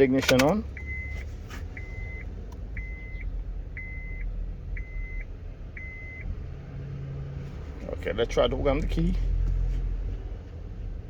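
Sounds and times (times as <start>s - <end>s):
electronic warning beeps: 0.8s - 6.2s.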